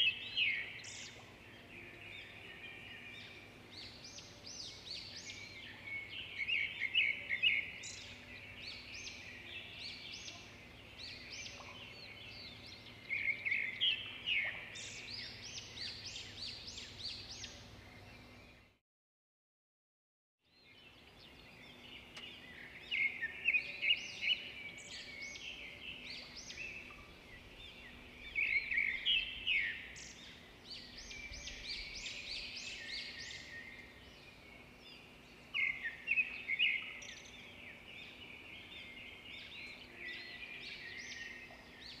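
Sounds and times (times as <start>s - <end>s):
birds chirping: 20.6s - 42.0s.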